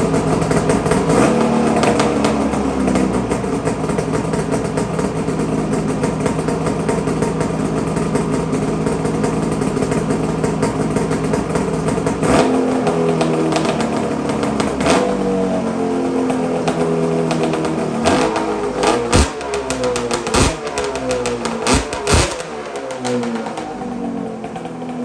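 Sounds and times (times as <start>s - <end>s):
snowmobile engine running: 17.3s - 24.9s.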